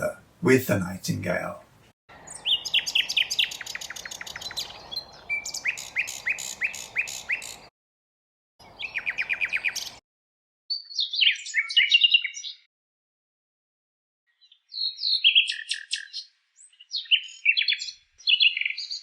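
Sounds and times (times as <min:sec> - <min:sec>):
nightingale singing: 0:02.1 - 0:07.7, 0:08.6 - 0:10.0, 0:10.7 - 0:12.6, 0:14.4 - 0:19.0.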